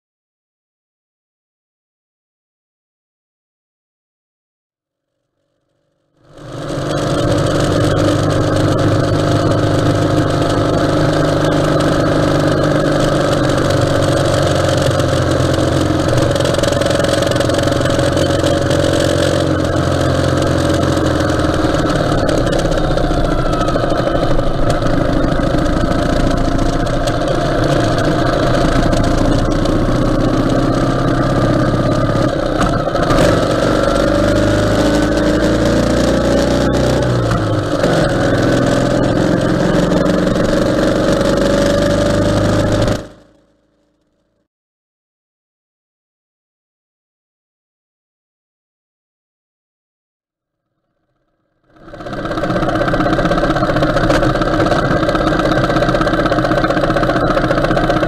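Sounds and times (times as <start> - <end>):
motorcycle engine running: 6.2 - 44.3, 51.7 - 58.0
wind and road noise: 6.4 - 43.2.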